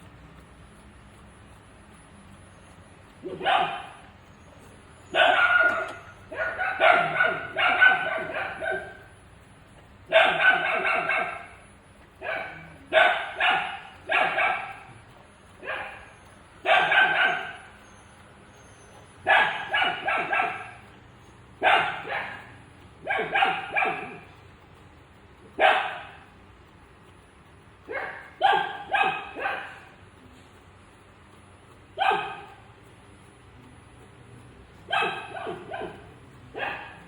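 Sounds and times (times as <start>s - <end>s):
dog barking: 3.2s - 4.0s, 5.1s - 9.1s, 10.1s - 11.6s, 12.2s - 15.0s, 15.6s - 17.7s, 19.2s - 20.8s, 21.6s - 24.2s, 25.6s - 26.2s, 27.9s - 29.9s, 32.0s - 32.6s, 34.9s - 37.0s.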